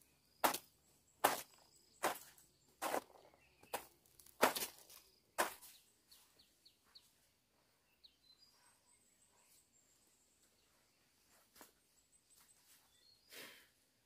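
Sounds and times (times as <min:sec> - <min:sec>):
faint bird chirps: 0:05.6 - 0:13.8.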